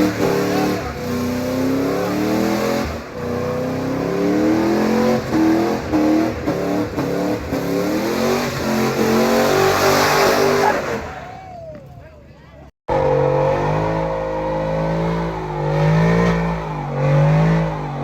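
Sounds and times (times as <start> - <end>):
truck engine revving: 0.0 - 11.2, 12.9 - 18.0.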